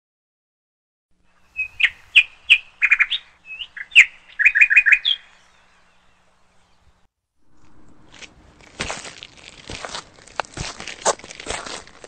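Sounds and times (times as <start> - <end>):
bird chirping: 1.2 - 8.5.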